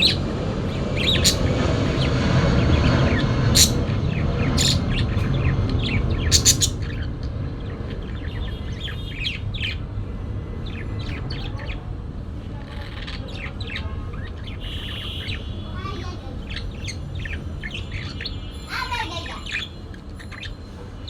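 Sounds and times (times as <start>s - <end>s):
steady low rumble: 0.0s - 10.9s
parakeets chirping: 0.0s - 21.0s.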